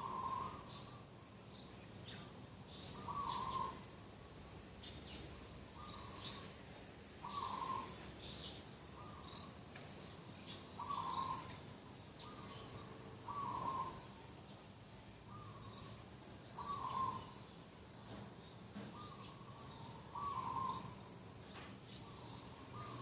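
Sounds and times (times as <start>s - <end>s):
dove cooing: 0.0s - 0.9s, 3.0s - 3.8s, 7.2s - 8.0s, 10.8s - 11.5s, 12.2s - 14.2s, 16.6s - 17.4s, 19.0s - 21.0s, 22.2s - 23.0s
small birds chirping: 0.0s - 23.0s.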